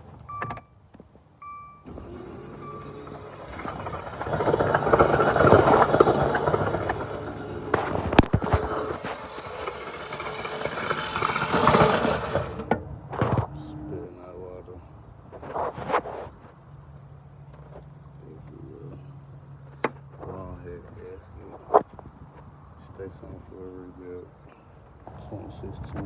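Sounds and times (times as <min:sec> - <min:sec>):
short beep: 0:00.3 - 0:00.8, 0:01.4 - 0:01.9, 0:02.6 - 0:03.2
engine starter cranking: 0:01.8 - 0:13.3.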